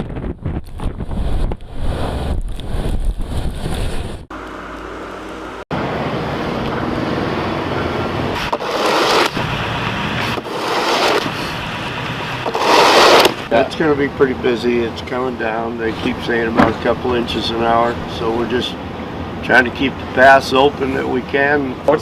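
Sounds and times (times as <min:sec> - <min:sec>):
wind buffeting microphone: 0:00.0 - 0:04.3
vehicles passing: 0:01.6 - 0:22.0.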